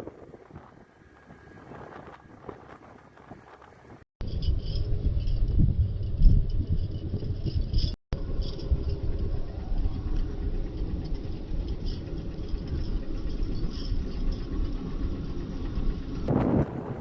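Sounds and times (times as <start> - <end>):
road vehicle rumble: 16.3 - 17.0.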